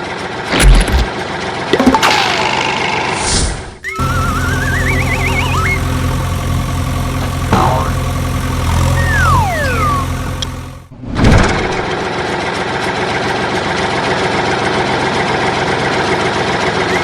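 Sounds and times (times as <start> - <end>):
warbling whistles: 3.8 - 5.8, 9.0 - 10.3
vehicle engine idling: 4.0 - 10.9.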